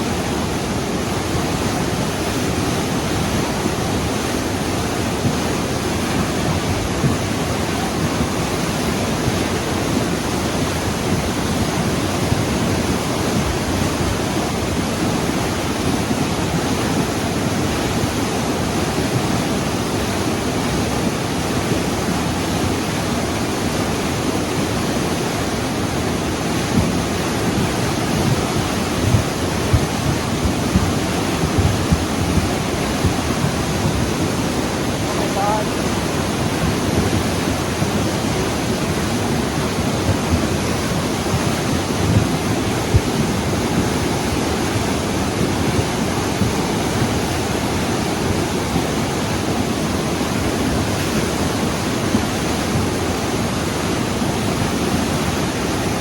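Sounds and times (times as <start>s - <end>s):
rushing water: 0.0s - 56.0s.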